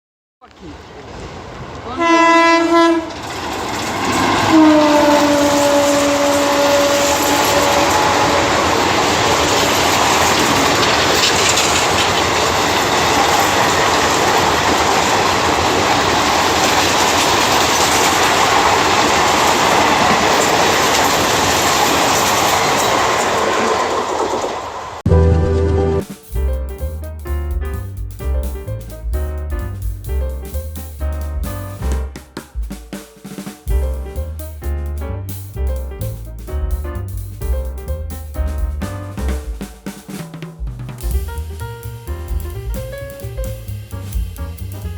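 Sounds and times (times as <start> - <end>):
train coaches rushing past: 0.6 - 26.4
train horn blasts: 2.0 - 3.2, 4.4 - 9.8.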